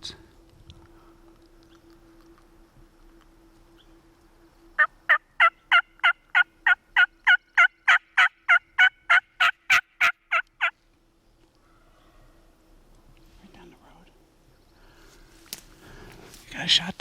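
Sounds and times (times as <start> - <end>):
turkey call yelps: 4.8 - 10.8.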